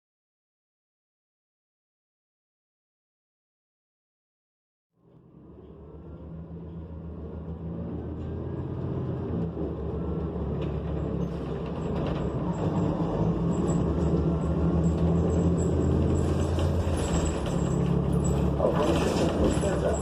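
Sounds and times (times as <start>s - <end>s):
bus engine running: 5.0s - 20.0s.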